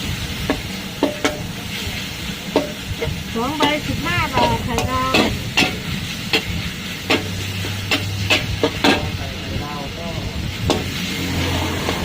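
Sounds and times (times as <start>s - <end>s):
food sizzling in hot oil: 0.0s - 12.0s
metal spatula clacking on pan: 0.5s - 1.5s, 2.5s - 3.8s, 4.4s - 9.2s.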